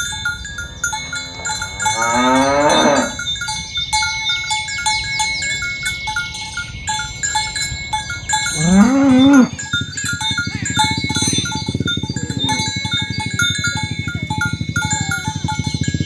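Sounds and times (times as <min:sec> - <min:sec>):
cow bells clanking: 0:00.0 - 0:16.0
cow mooing: 0:00.6 - 0:03.3, 0:08.5 - 0:09.9.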